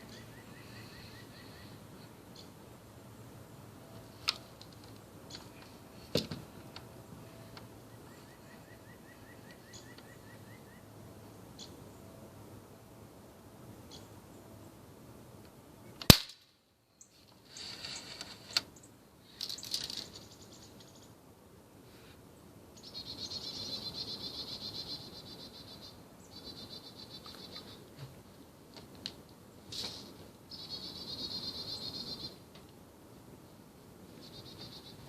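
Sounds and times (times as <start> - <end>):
air rifle firing: 16.1 - 16.4.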